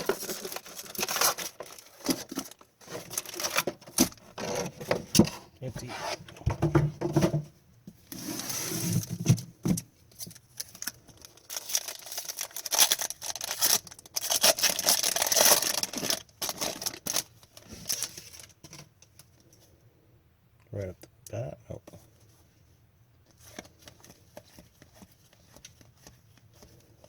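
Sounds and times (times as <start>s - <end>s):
card wrappers crinkling and tearing: 0.0s - 4.7s, 10.2s - 18.6s, 23.3s - 27.0s
cards rustling and flicking: 23.3s - 27.0s.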